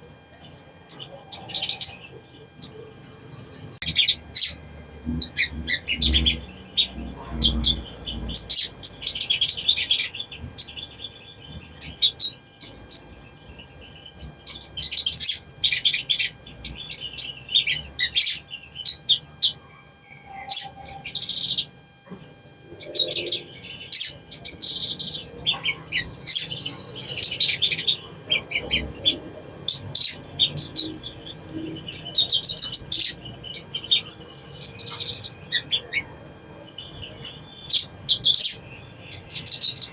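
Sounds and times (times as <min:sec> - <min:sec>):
bird chattering song: 0:00.0 - 0:39.9.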